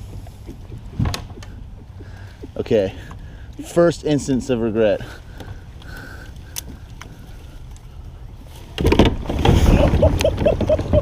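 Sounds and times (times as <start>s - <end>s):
kayak hull scraping: 0.0s - 11.0s.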